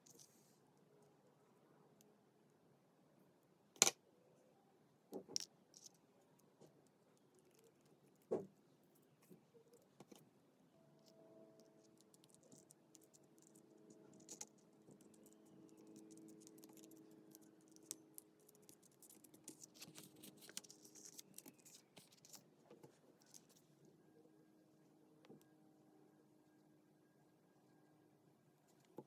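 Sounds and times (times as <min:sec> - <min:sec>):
faint steady hum: 0:00.0 - 0:29.0
paper handling clicks and scratches: 0:11.9 - 0:22.4.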